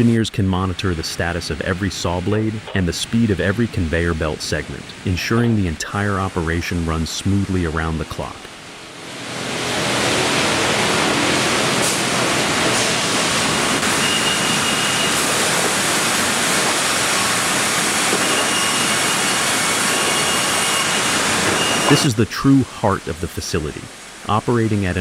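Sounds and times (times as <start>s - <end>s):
sawmill machinery running: 9.0s - 22.1s
short high whines: 18.2s - 22.3s.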